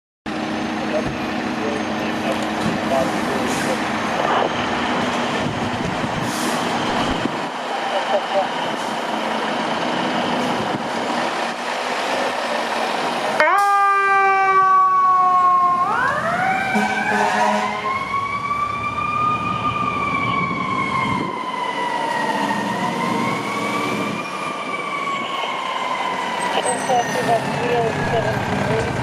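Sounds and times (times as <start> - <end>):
siren wailing: 0.5 - 11.6, 12.6 - 29.0
fire truck air horn: 13.4 - 18.0.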